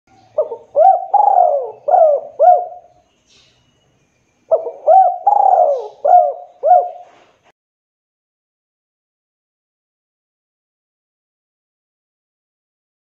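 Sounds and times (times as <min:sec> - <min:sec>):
dove cooing: 0:00.2 - 0:02.9, 0:04.5 - 0:07.3.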